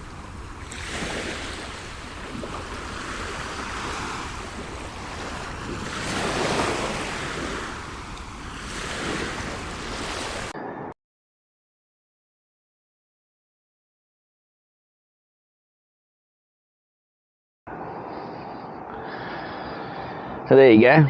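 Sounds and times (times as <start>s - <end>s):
waves washing onto beach: 0.0s - 10.9s
wind buffeting microphone: 0.0s - 10.9s.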